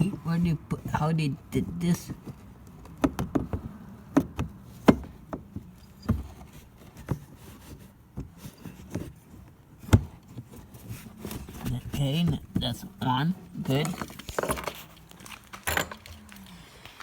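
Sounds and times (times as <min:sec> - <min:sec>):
knocks and clicks of part fitting: 0:02.2 - 0:06.5.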